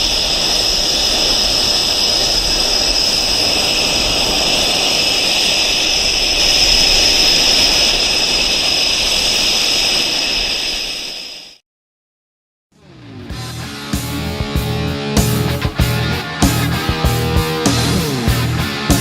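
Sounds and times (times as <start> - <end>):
jet engines running with whine: 0.0 - 11.6.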